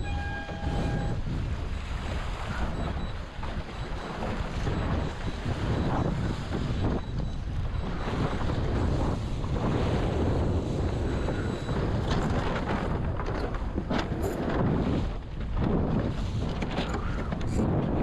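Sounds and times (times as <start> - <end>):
water noise: 0.0 - 18.0
wind buffeting microphone: 0.0 - 18.0.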